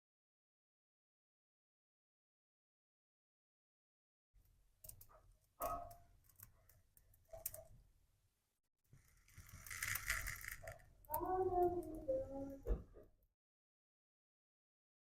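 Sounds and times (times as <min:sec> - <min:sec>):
small hard objects clinking: 0:09.2 - 0:10.9.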